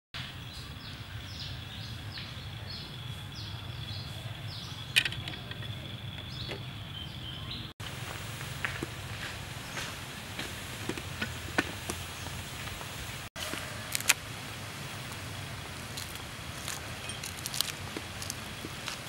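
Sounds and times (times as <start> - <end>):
birds chirping: 0.2 - 13.8.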